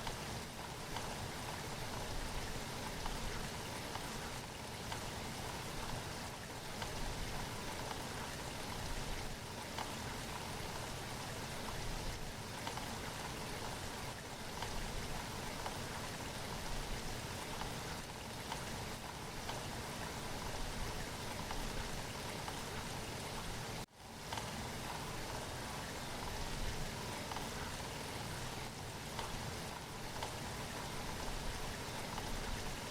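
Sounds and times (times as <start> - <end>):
steady rain falling: 0.0 - 32.9.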